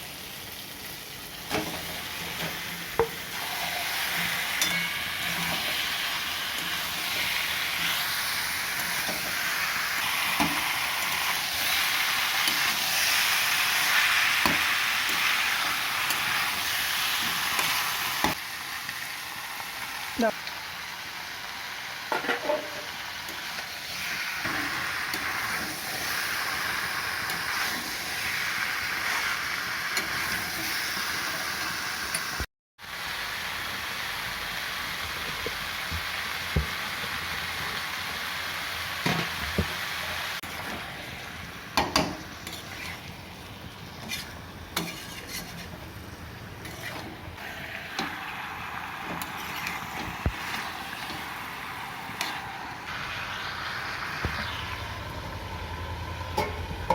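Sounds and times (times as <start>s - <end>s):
chicken sizzling in a pan: 0.0s - 56.9s
spatula scraping metal pan: 42.4s - 43.1s, 44.0s - 45.8s, 46.6s - 47.2s, 49.1s - 51.1s.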